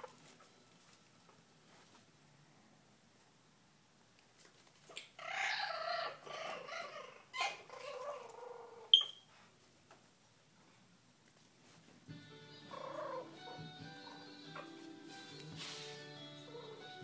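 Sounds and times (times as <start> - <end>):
puppy whining: 5.2 - 9.2, 12.7 - 14.8, 16.3 - 17.0.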